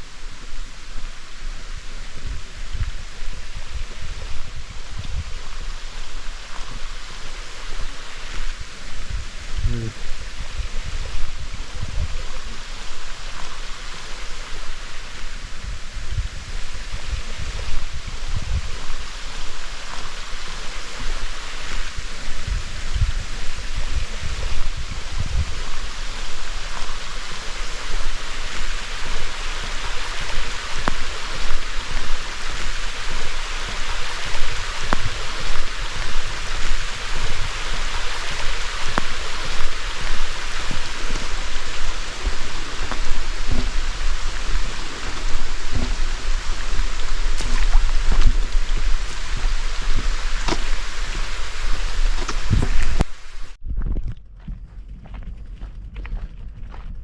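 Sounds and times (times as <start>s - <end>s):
stream rushing: 0.0s - 53.6s
low thumps: 30.3s - 53.9s.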